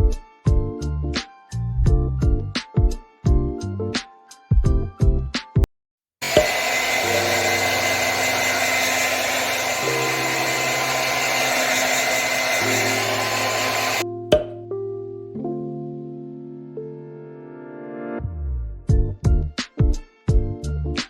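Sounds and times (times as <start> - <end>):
appliance motor whirring: 6.2 - 14.0.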